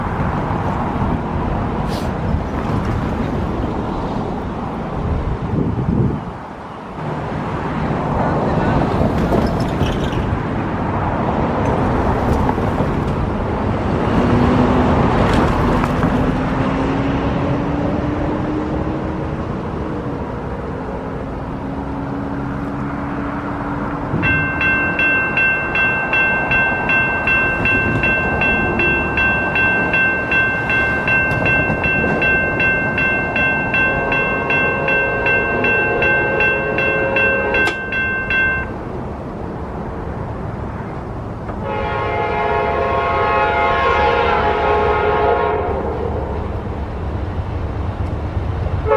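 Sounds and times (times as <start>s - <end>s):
passenger train rumbling past: 0.0s - 48.9s
grade-crossing bell ringing: 24.1s - 39.0s.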